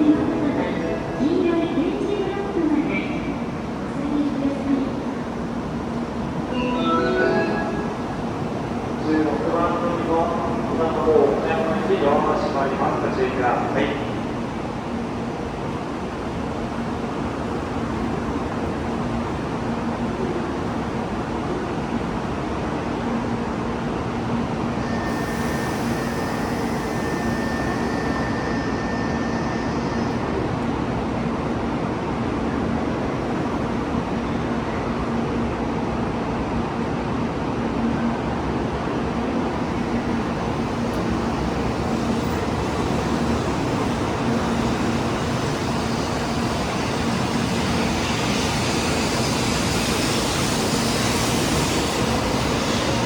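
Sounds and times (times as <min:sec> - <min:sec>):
train rumbling: 0:00.0 - 0:53.0
faint high whine: 0:24.8 - 0:30.3.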